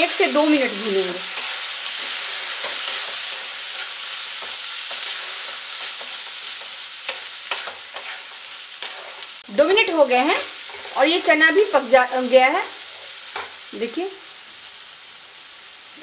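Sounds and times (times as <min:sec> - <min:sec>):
chickpeas sizzling in oil: 0:00.0 - 0:16.0
spatula scraping and tapping pan: 0:01.3 - 0:09.3, 0:13.3 - 0:13.6.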